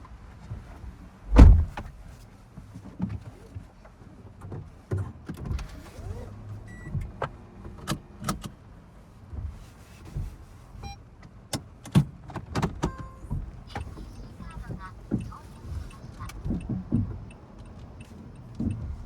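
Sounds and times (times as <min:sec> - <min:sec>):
clicks and knocks of car controls: 0:01.3 - 0:02.0, 0:06.9 - 0:08.6, 0:11.2 - 0:19.0.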